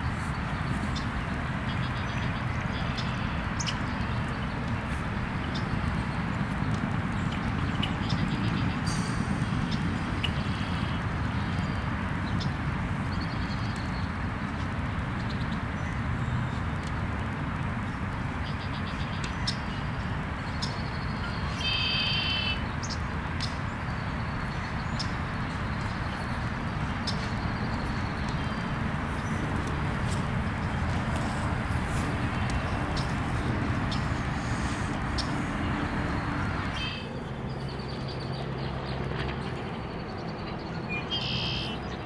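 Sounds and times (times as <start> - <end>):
birds chirping: 0.0 - 42.0
low outdoor rumble: 22.6 - 41.0
loud bird call: 36.2 - 37.2, 41.1 - 41.8.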